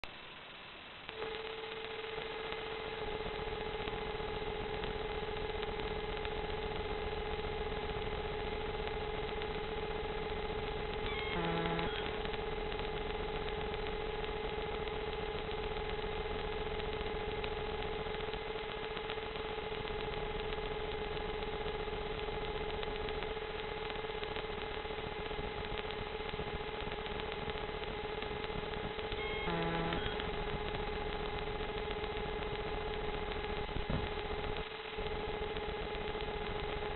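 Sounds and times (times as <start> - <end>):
drone motors whining: 11.0 - 12.3, 29.1 - 30.3.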